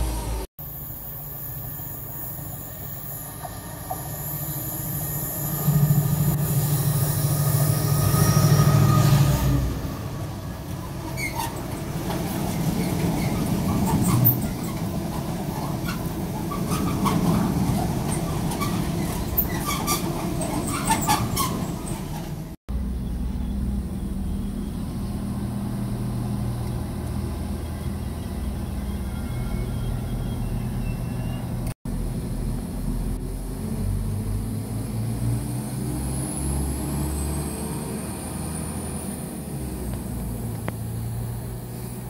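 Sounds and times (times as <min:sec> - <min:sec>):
diesel locomotive engine passing: 0:00.0 - 0:42.0
wheel squeals: 0:01.5 - 0:22.6, 0:27.6 - 0:31.8.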